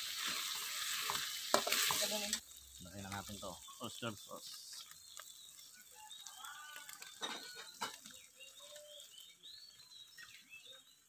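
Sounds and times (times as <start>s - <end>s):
faint bird chirps: 3.0s - 11.0s.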